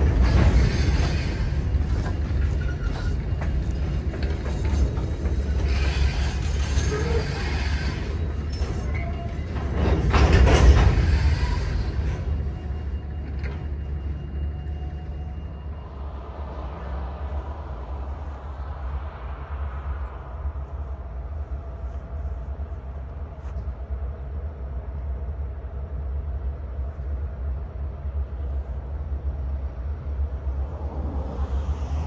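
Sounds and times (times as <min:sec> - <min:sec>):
train wheel squeaks: 0:00.0 - 0:15.8
train clanks: 0:00.0 - 0:15.9
train wheels rumbling on rail: 0:00.0 - 0:32.0.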